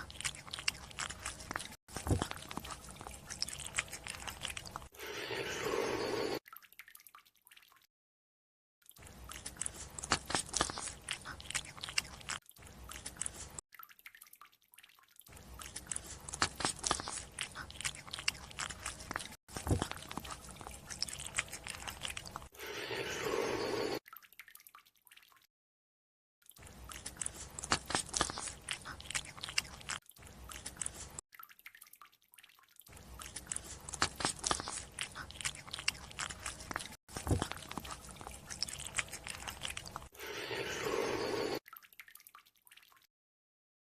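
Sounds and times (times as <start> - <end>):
wet chewing mouth noises: 0.0 - 6.3, 8.9 - 13.6, 15.3 - 23.6, 26.5 - 41.6.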